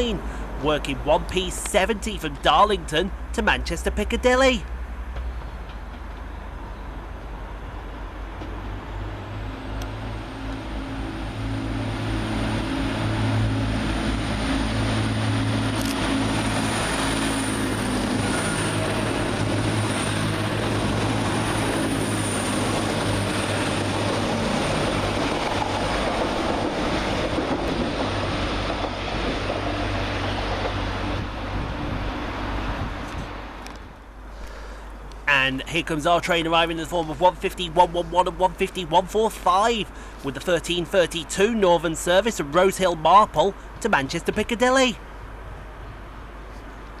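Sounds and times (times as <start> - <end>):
diesel train engine drone: 0.0 - 47.0
train wheel noise: 9.6 - 33.9.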